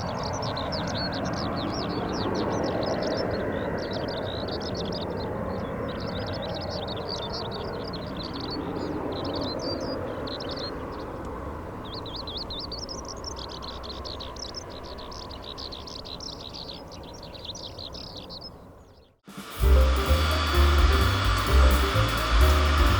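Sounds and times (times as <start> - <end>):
small birds chirping: 0.0 - 19.2
steady low rumble: 19.4 - 22.9.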